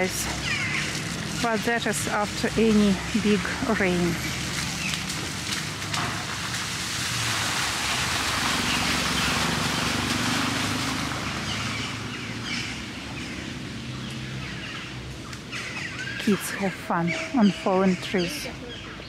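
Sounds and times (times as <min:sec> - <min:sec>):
small birds chirping: 0:00.0 - 0:05.8, 0:11.3 - 0:19.0
hiss on wet street: 0:02.9 - 0:11.8.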